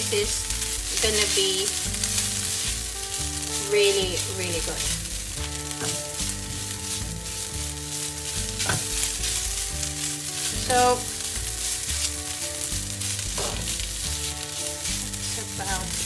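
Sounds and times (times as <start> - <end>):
food sizzling in a pan: 0.0 - 16.0
spatula scraping a pan: 0.0 - 16.0.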